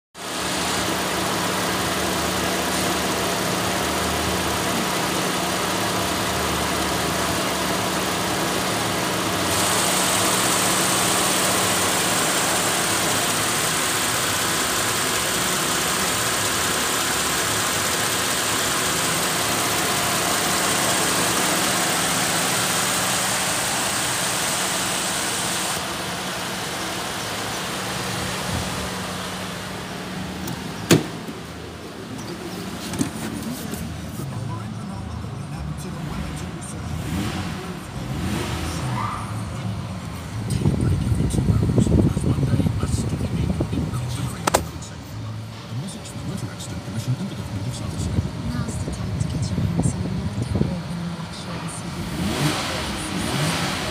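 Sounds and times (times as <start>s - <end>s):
car engine idling: 0.2s - 53.9s
sharp click: 44.4s - 44.7s.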